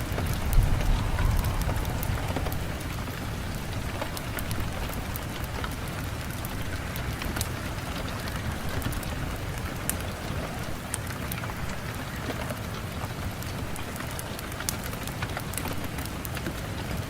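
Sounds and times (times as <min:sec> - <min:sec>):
low rumble: 0:00.0 - 0:06.9
raindrop ticks: 0:00.0 - 0:17.0
steady rain: 0:00.0 - 0:17.0.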